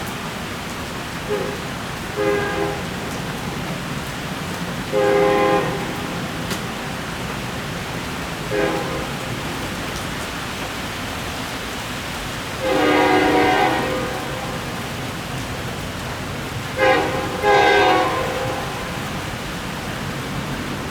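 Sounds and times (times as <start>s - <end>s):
heavy rain: 0.0s - 20.9s
diesel locomotive horn blasts: 1.2s - 3.6s, 4.8s - 6.6s, 8.4s - 9.8s, 12.5s - 15.4s, 16.4s - 19.7s.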